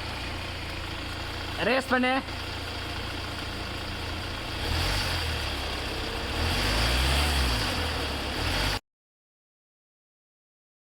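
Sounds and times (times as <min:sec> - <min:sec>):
car engine revving: 0:02.6 - 0:08.8.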